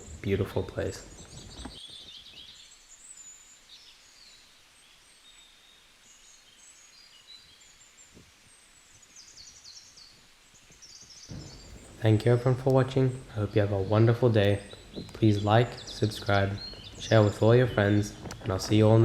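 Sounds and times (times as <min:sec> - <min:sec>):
high-pitched bird chirps: 0:14.6 - 0:18.5.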